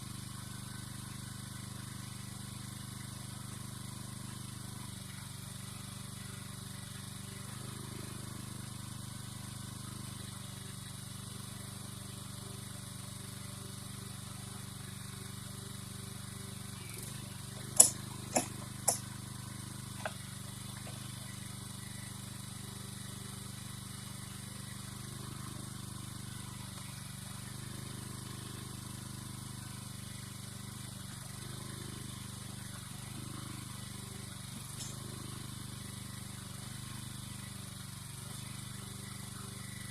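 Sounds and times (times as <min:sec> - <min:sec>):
engine running: 0:00.0 - 0:39.9
sharp knocks: 0:17.8 - 0:19.0.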